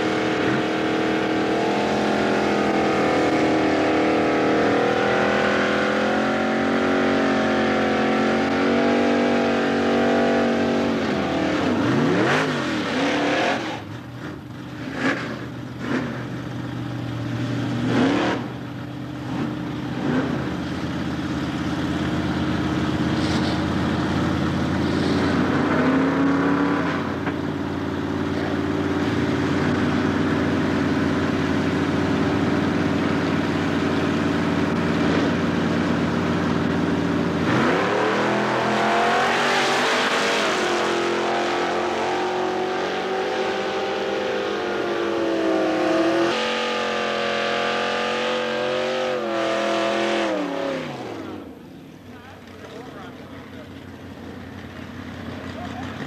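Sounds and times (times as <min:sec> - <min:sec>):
car engines idling unevenly: 0:13.7 - 0:25.7, 0:26.6 - 0:37.7, 0:50.9 - 0:56.0.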